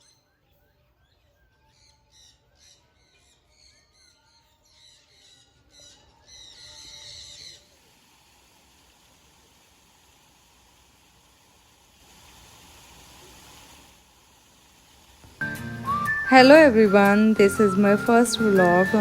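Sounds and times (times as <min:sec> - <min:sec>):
steady hiss: 0:04.7 - 0:19.0.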